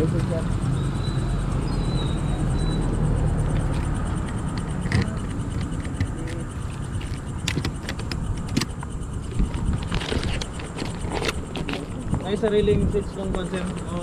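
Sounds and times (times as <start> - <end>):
vehicle rumble: 0.0 - 14.0
sharp clicks and knocks: 3.5 - 12.3.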